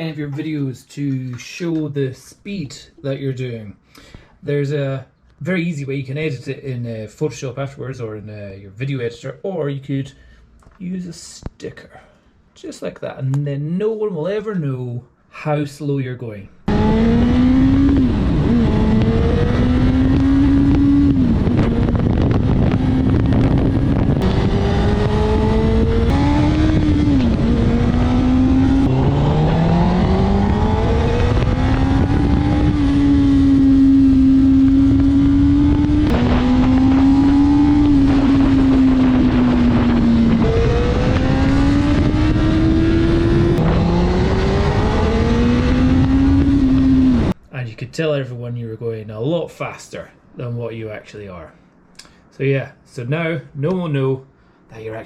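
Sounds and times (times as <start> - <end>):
loud steady rushing noise: 16.7 - 47.4
motorcycle engine accelerating: 16.7 - 47.4.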